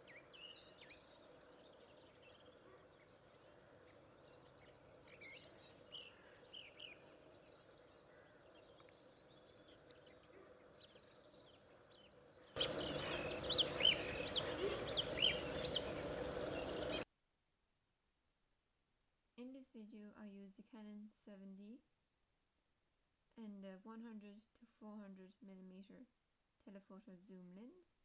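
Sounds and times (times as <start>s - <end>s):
birds chirping and whistling: 12.6s - 17.0s
faint steady hum: 12.6s - 17.0s.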